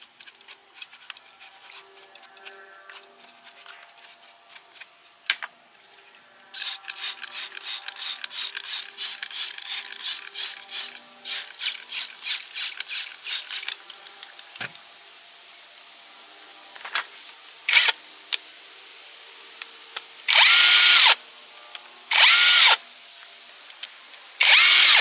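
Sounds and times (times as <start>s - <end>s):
hand tool strokes: 0.0s - 5.0s, 6.6s - 13.8s, 24.4s - 25.0s.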